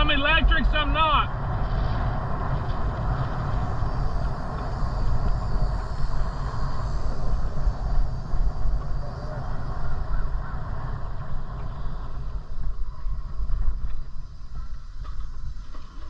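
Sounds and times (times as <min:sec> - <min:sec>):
road noise: 0:00.0 - 0:16.0
wind buffeting microphone: 0:00.0 - 0:16.0.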